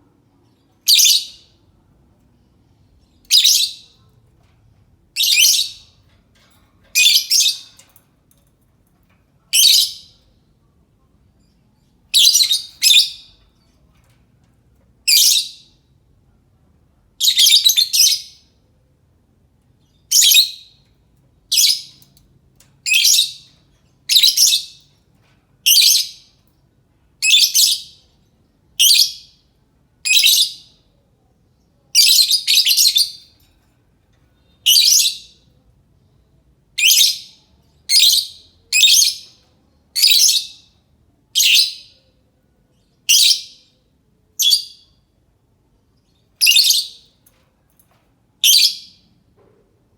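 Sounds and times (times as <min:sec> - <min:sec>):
lovebird shrill chirping: 0:46.4 - 0:47.0.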